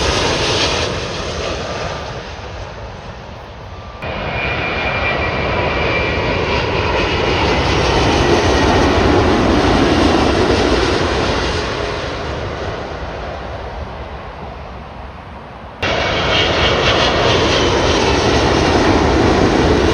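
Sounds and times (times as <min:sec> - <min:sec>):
faint high whine: 0:00.0 - 0:07.6
jet airliner passing: 0:00.0 - 0:19.9.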